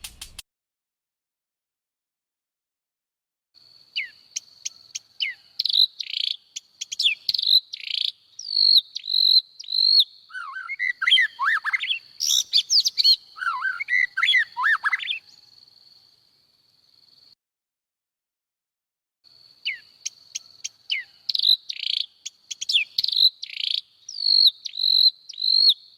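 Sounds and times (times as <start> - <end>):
birds chirping and singing: 4.0 - 15.4, 19.7 - 25.8.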